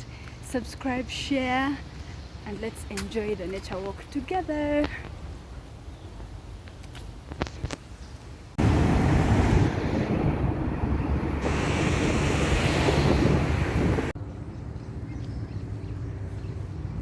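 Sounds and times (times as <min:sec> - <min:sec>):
wind buffeting microphone: 0:08.5 - 0:17.0.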